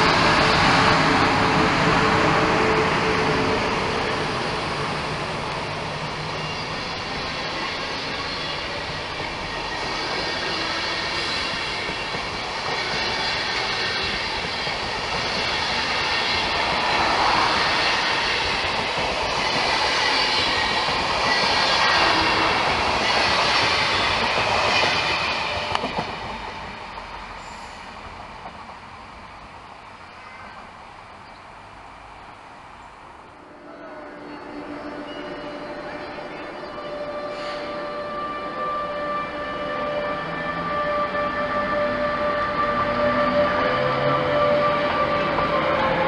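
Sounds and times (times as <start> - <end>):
rumble of track noise: 0.0 - 36.8
steel wheels squealing on rails: 2.2 - 28.2, 33.6 - 41.0.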